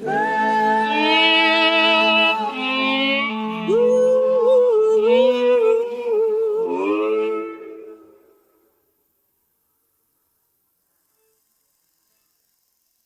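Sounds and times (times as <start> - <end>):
gliding vocal melody: 0.0 - 8.6
wordless vocal harmonies: 0.0 - 8.8.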